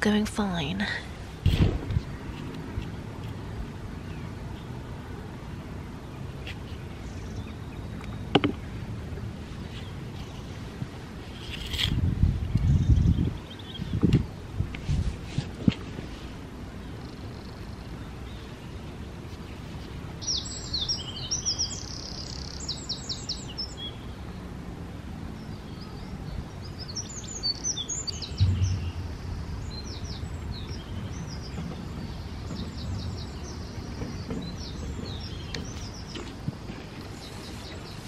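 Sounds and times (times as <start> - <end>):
low thump: 1.5 - 2.0, 28.4 - 32.6
small birds chirping and trilling: 12.4 - 14.4, 16.8 - 24.5, 25.3 - 38.0
low background rumble: 28.2 - 33.9.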